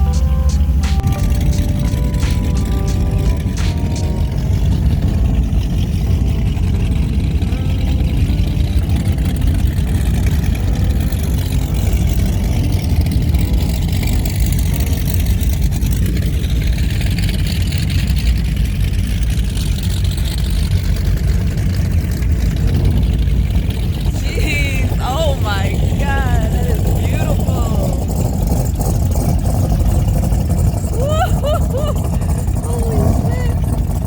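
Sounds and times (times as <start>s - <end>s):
outboard motors rumbling: 0.0s - 34.0s.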